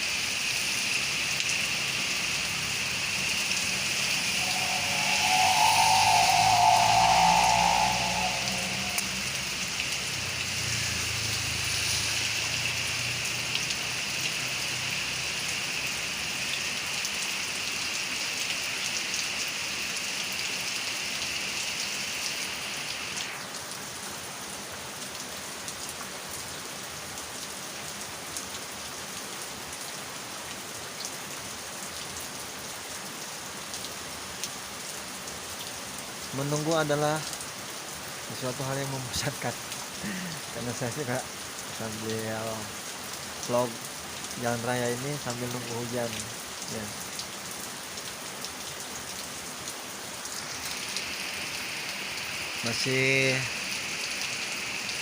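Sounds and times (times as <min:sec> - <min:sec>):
heavy rain pouring: 0:00.0 - 0:30.9, 0:31.5 - 0:55.0
low rumble: 0:03.0 - 0:09.8.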